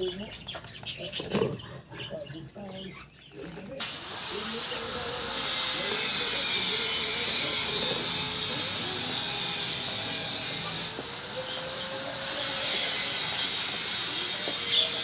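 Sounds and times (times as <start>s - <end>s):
electric power tool running: 3.8s - 15.0s.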